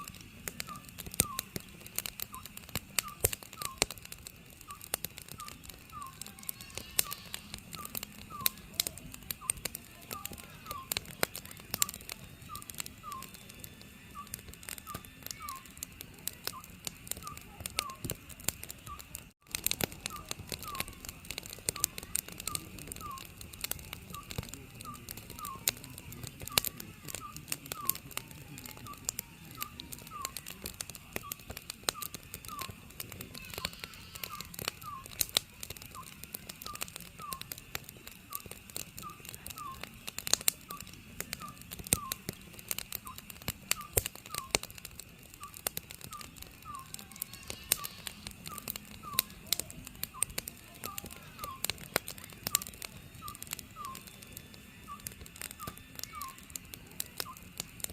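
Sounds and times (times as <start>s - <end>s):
wood fire crackling: 0.0s - 57.9s
owl whistled calls: 0.1s - 1.6s, 2.3s - 3.9s, 4.7s - 11.2s, 11.8s - 13.5s, 14.1s - 15.9s, 16.5s - 18.0s, 20.0s - 23.3s, 24.1s - 37.6s, 38.3s - 40.0s, 40.7s - 42.4s, 43.8s - 44.7s, 45.4s - 49.4s, 50.2s - 51.9s, 52.6s - 54.2s, 54.8s - 56.6s.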